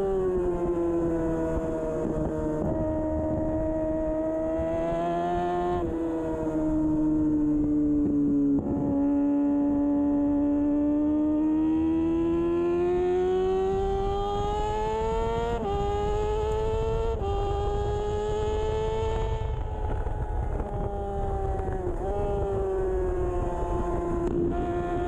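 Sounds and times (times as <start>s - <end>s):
motorcycle engine accelerating: 0.0s - 25.0s
wind rush: 13.8s - 25.0s.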